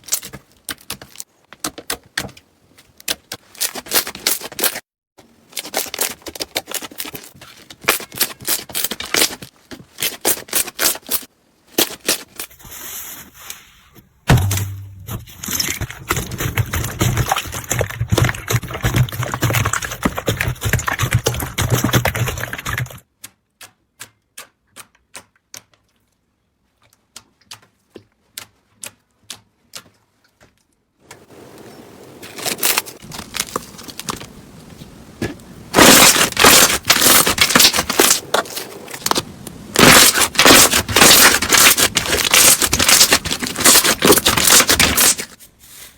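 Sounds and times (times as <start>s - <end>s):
slime popping and crackling: 35.7s - 39.2s, 39.8s - 45.3s.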